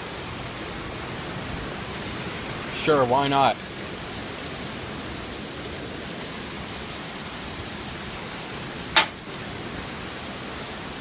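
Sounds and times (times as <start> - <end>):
steady rain falling: 0.0 - 11.0
sharp knock: 9.0 - 9.2.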